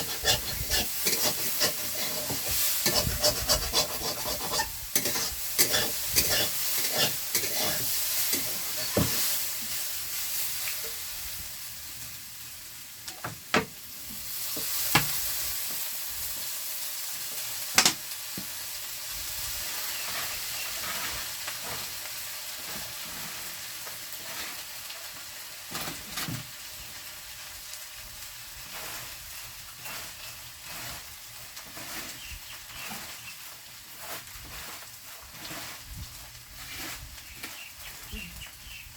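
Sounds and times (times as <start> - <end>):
utensil scraping a pan: 0.0 - 9.8, 19.9 - 22.0, 24.2 - 24.7, 28.7 - 37.9
food sizzling in oil: 0.0 - 38.9.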